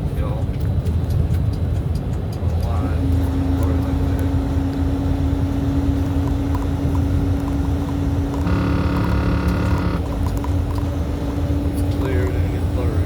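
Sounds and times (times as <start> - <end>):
truck engine and road drone: 0.0 - 13.0
horn tone: 8.4 - 10.1.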